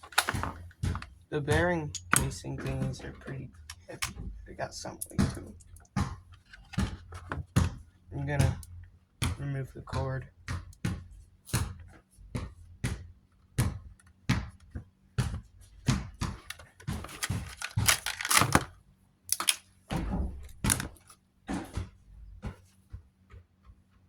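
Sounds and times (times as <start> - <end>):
crinkling and rustling: 0.0 - 7.8, 16.2 - 21.2
plastic and wire clicks and knocks: 0.0 - 10.9, 15.9 - 18.7, 19.3 - 21.2.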